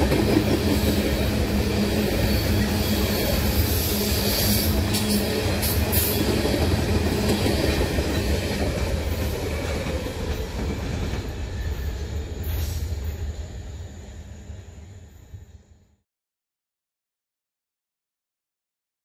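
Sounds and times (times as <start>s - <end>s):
train wheel clacks: 0.0s - 1.2s, 4.8s - 11.4s
freight train rumble on rails: 0.0s - 16.0s.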